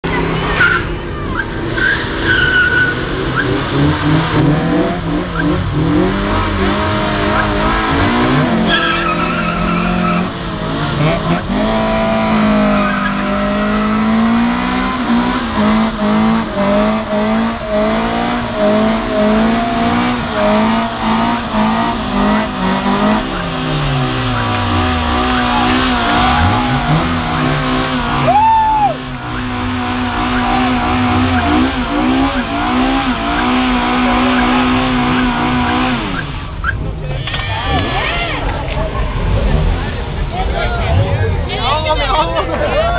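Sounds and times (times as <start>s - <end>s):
engines at high revs: 0.1s - 42.6s
tyres squealing: 0.5s - 4.5s, 7.2s - 10.4s, 16.8s - 38.6s.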